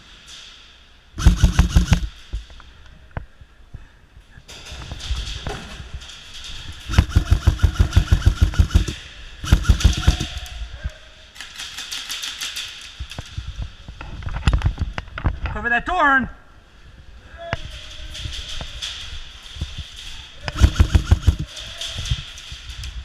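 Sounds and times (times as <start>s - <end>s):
airsoft rifles firing bursts: 1.2s - 2.1s, 6.9s - 10.4s, 20.5s - 21.5s.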